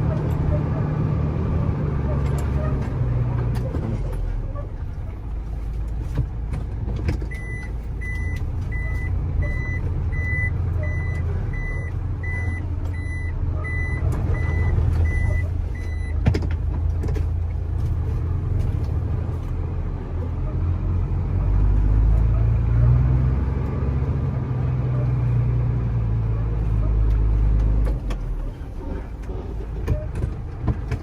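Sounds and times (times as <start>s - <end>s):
truck engine rumbling: 0.0s - 31.0s
reversing alarm beeping: 7.4s - 16.2s.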